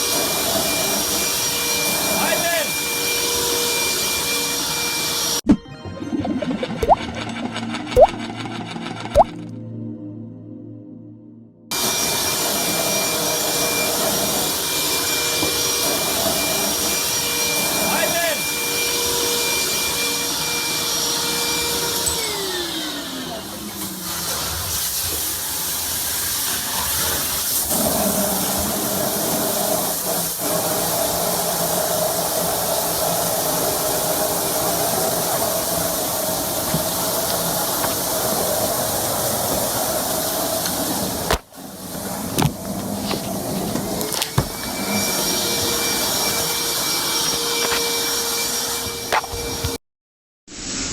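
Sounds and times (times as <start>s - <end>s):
water spraying from pipe: 8.0s - 8.3s, 23.8s - 43.0s
power tool motor cutting pipe: 11.7s - 25.3s, 27.6s - 49.8s.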